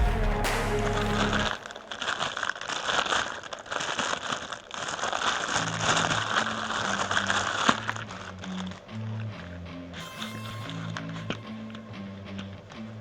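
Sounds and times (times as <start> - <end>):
background music bass notes: 0.0 - 1.6
dense crackling and rustling: 0.9 - 8.7.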